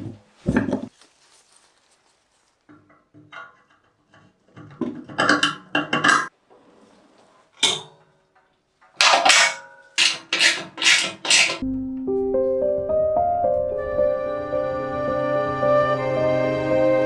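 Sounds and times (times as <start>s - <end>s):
metal clattering and clinking: 0.4s - 6.4s, 7.6s - 11.6s.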